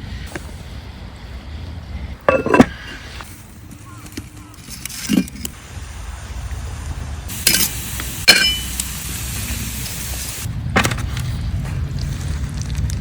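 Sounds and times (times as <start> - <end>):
food sizzling in a pan: 7.3 - 10.5
utensil clinking on pan: 8.3 - 8.7.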